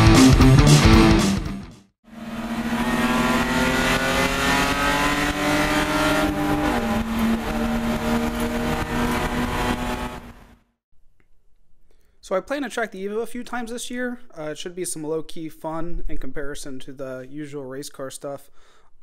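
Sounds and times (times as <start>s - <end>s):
race car engine revving: 2.1s - 10.6s.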